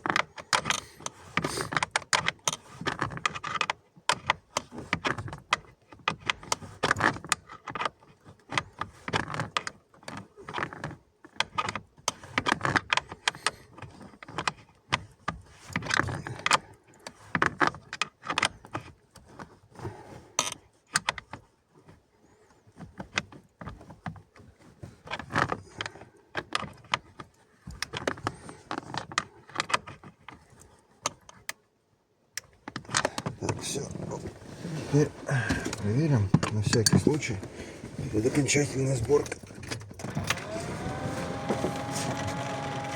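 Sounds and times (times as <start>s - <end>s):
tools clicking and rattling: 35.5s - 37.4s.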